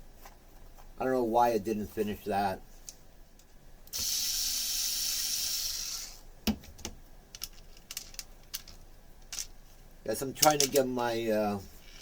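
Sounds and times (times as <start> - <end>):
steady hiss: 1.0 - 6.4, 7.3 - 12.0
light clicks of parts handled: 7.3 - 9.6, 10.4 - 10.9.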